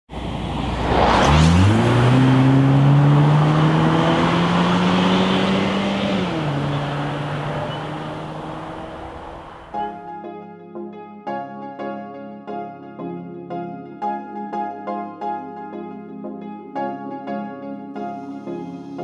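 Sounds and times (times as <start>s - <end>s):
short whoosh: 0.2s - 3.0s
car engine revving: 0.2s - 9.9s.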